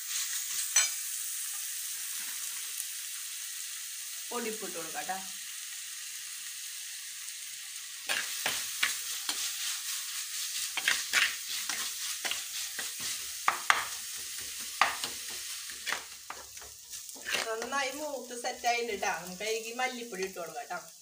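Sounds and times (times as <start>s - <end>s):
vegetables sizzling in hot oil: 0.0s - 21.0s
steel spoon scraping clay pot: 10.8s - 17.8s.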